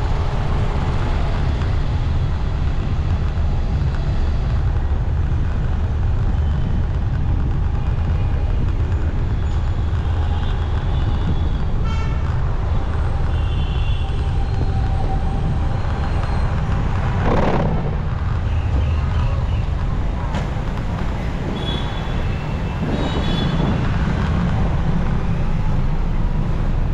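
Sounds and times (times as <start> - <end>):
vehicle horns honking: 11.8 - 12.3.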